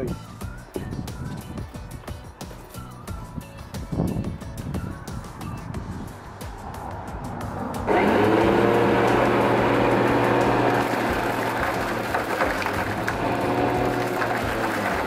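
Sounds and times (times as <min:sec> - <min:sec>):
lawnmower running: 0:07.9 - 0:15.0.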